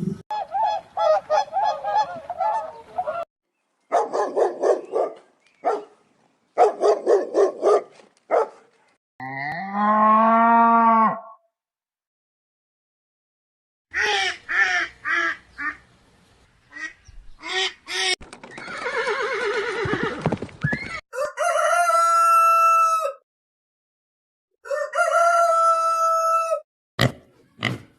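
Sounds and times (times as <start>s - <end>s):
farm birds honking: 0.3s - 3.2s.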